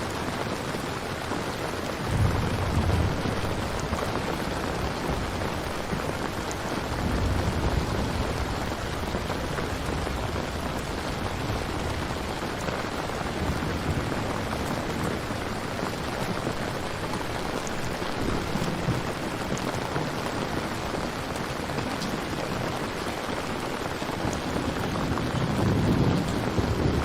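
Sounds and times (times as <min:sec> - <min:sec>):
steady rain falling: 0:00.0 - 0:27.0
thunder rumbling: 0:01.8 - 0:27.0.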